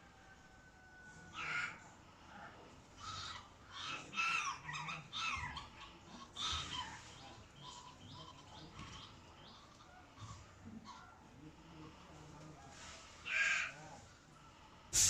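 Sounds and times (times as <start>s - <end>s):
parrot squawking: 3.0s - 8.6s.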